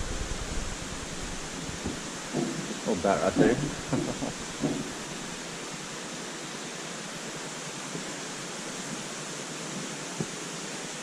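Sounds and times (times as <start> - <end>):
water rushing and falling: 0.0 - 11.0.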